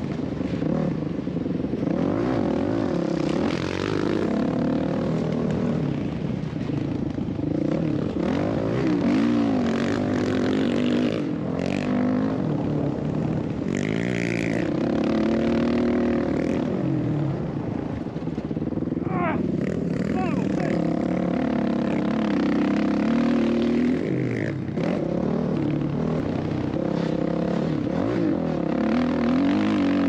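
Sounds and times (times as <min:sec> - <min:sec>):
dirt bike engine revving: 0:07.5 - 0:12.7, 0:13.4 - 0:17.6, 0:19.0 - 0:30.0.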